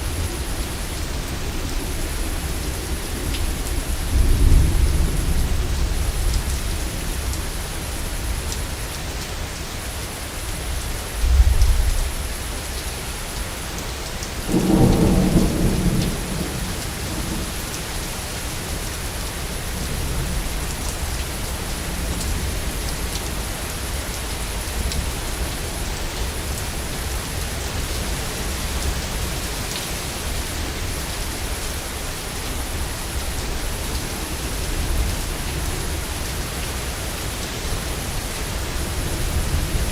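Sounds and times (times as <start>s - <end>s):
heavy rain falling: 0.0s - 39.9s
thunder rumbling: 14.5s - 17.6s.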